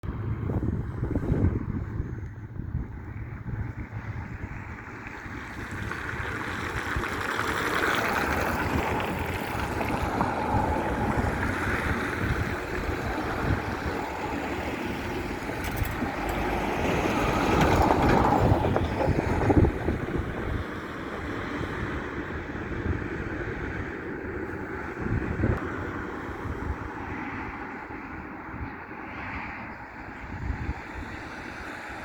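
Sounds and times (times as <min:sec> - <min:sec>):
freight train rumbling past: 0:05.7 - 0:24.9.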